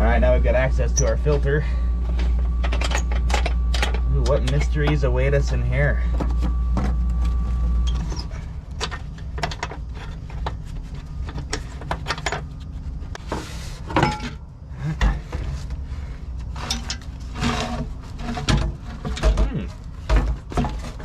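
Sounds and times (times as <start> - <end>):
steady low hum: 0.0 - 21.0
plastic housing clicks and scraping: 7.9 - 14.0.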